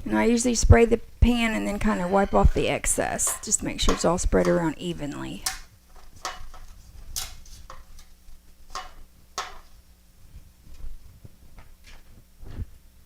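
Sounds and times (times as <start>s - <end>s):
kitchen clicks and taps: 3.2s - 4.6s, 5.4s - 8.1s, 8.7s - 9.7s.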